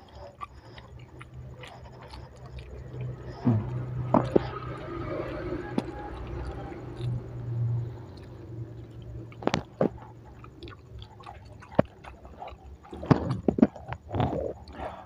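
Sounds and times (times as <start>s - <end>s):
wet clicks and lip smacks: 0.0s - 14.9s
person chewing food: 0.0s - 15.0s.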